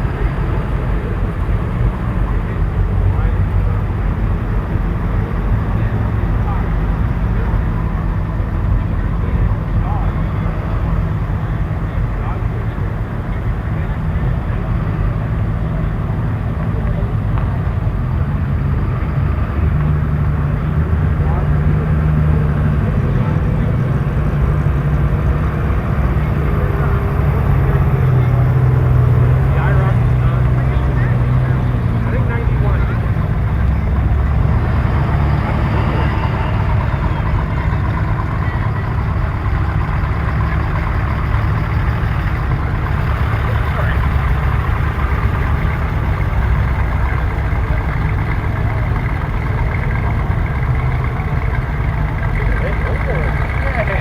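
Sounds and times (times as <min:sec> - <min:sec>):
car engines rumbling: 0:00.0 - 0:54.0.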